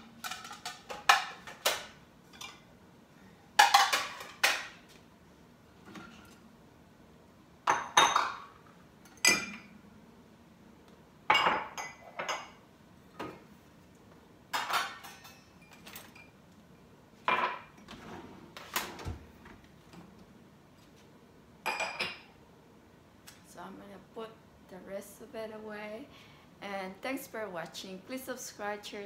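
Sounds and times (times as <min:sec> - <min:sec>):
dishes and cutlery clinking: 0:07.7 - 0:09.7, 0:14.5 - 0:16.4.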